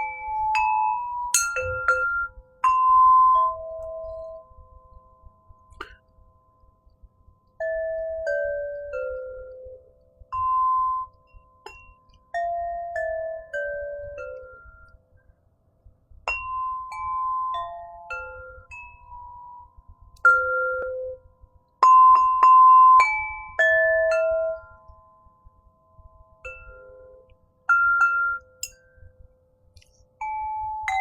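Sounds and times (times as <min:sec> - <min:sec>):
crystal harp bell-like notes: 0:00.0 - 0:06.0.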